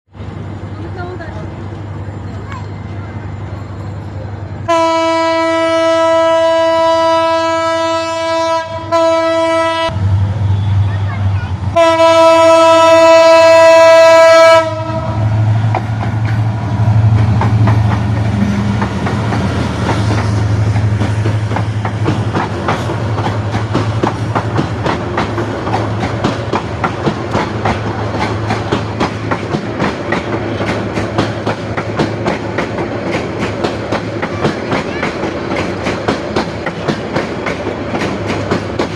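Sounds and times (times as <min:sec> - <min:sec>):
train rumbling: 0:00.1 - 0:38.9
train horn: 0:04.6 - 0:10.8, 0:11.7 - 0:15.4
wheels clacking over rail joints: 0:12.0 - 0:38.9.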